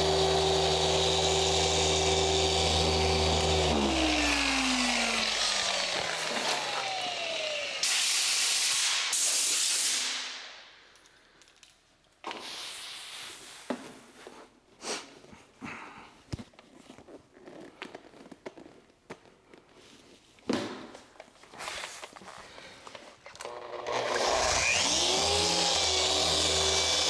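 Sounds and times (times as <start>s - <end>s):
paint polisher motor running: 0.0s - 8.8s, 23.4s - 27.0s.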